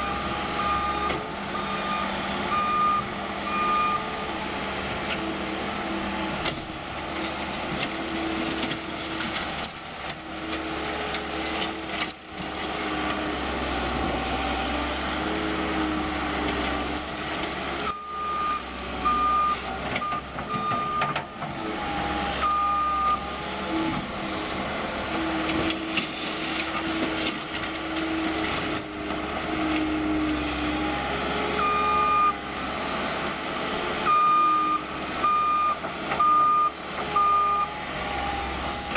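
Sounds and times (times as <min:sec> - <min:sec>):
reversing alarm beeps: 0:00.0 - 0:04.1, 0:17.9 - 0:21.1, 0:22.4 - 0:23.2, 0:31.6 - 0:32.4, 0:34.1 - 0:37.7
diesel engine running: 0:00.0 - 0:38.9.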